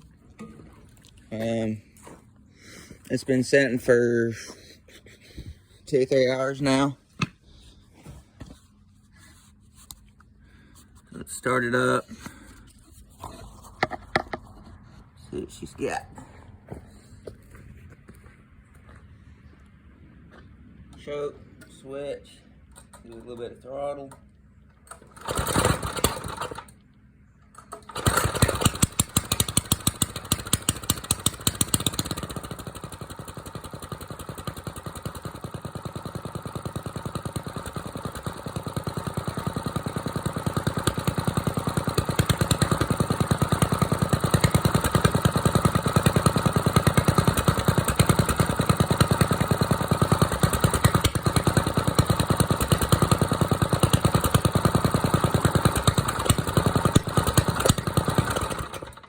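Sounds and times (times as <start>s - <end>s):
small gasoline engine starting: 24.8s - 26.8s, 27.5s - 59.0s.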